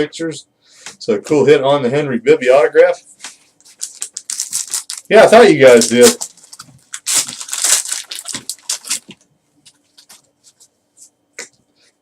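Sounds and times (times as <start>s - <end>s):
card pack wrapper crinkling: 3.6s - 10.3s.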